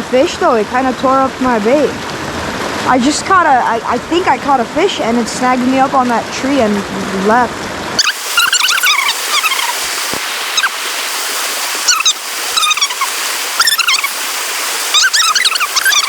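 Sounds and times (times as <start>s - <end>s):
river water rushing: 0.0s - 16.0s
bird warbling: 8.0s - 10.8s, 11.7s - 16.0s.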